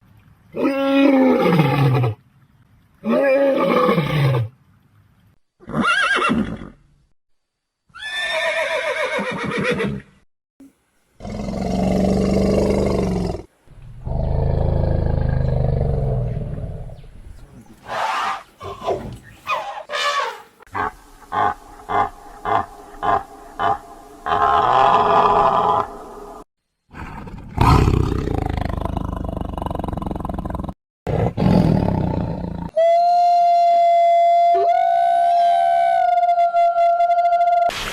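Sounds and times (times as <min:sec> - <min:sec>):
deep drawn-out roars: 0:11.2 - 0:17.0
wild animal calls: 0:11.2 - 0:26.4.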